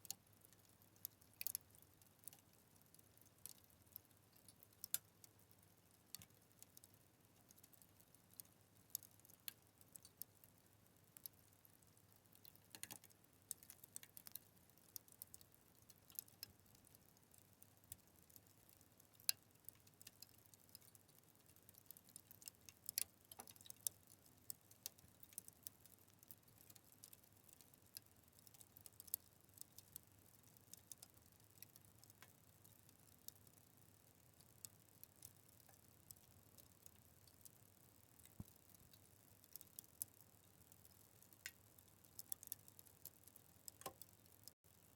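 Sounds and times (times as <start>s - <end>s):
fire crackling and popping: 11.1s - 44.6s.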